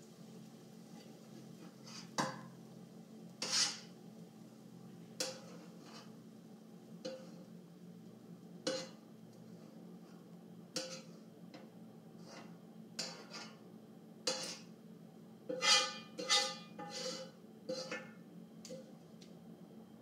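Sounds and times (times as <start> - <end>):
spatula scraping a wok: 0.9 - 2.4, 3.3 - 4.0, 5.2 - 6.2, 7.0 - 7.6, 8.6 - 14.8, 15.5 - 18.2.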